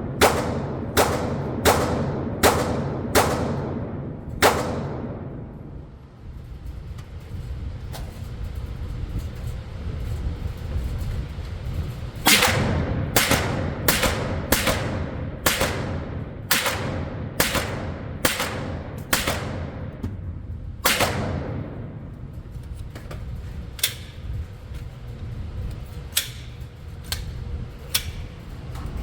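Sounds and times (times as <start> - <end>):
low steady rumble: 0.0 - 29.0
suppressed rifle shots: 0.1 - 5.5, 12.3 - 20.0, 20.8 - 21.9.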